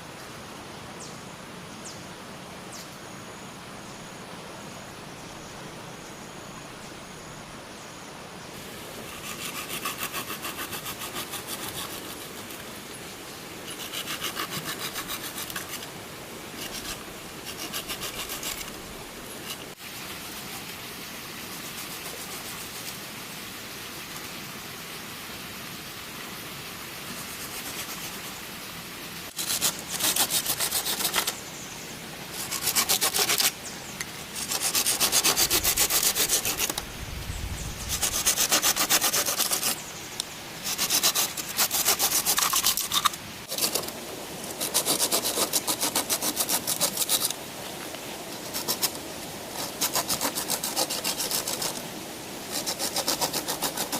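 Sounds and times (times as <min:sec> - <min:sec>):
hand saw cutting bamboo: 0:09.0 - 0:12.5, 0:13.6 - 0:15.9, 0:16.6 - 0:18.8, 0:29.3 - 0:31.4, 0:32.4 - 0:33.6, 0:34.4 - 0:36.8, 0:37.8 - 0:39.8, 0:40.6 - 0:43.9, 0:44.5 - 0:47.4, 0:48.4 - 0:49.0, 0:49.6 - 0:51.8, 0:52.5 - 0:53.9.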